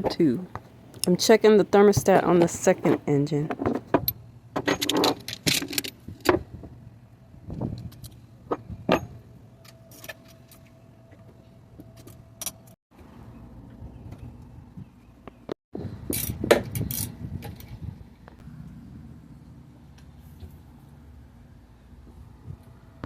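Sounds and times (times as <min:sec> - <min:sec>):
steady low hum: 0:15.8 - 0:23.0.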